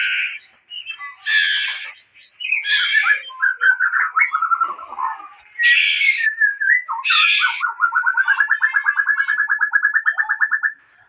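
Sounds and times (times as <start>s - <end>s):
bird harsh rasping phrase: 4.4s - 6.2s.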